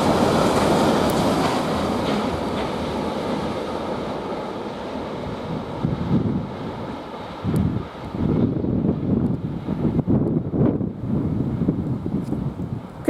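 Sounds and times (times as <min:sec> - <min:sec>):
train wheels clicking over rail joints: 0:00.0 - 0:10.8
freight train rolling: 0:00.0 - 0:13.0.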